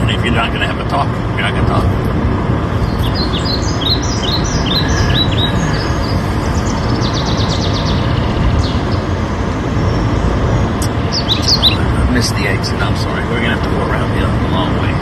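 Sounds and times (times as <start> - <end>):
car road and engine rumble: 2.7 - 12.0.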